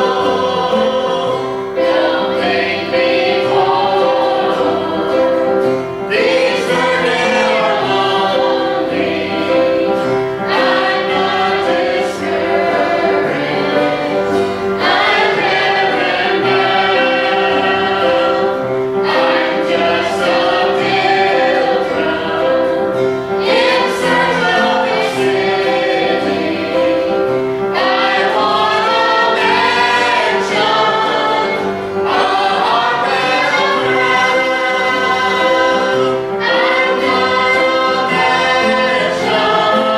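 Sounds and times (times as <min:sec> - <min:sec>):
choir singing gospel in harmony: 0:00.0 - 0:39.9
instrumental accompaniment: 0:00.0 - 0:39.9.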